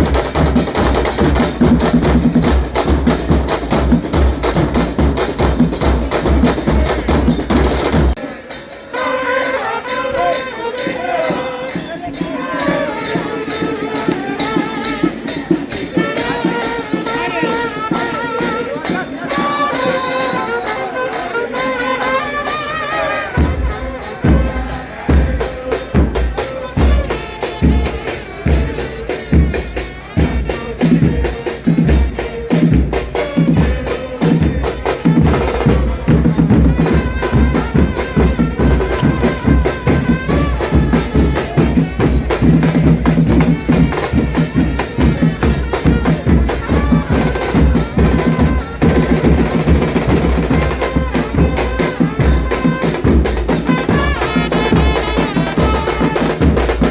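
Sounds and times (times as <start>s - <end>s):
bass drums beating fast rhythm: 0.0s - 8.2s, 23.3s - 56.9s.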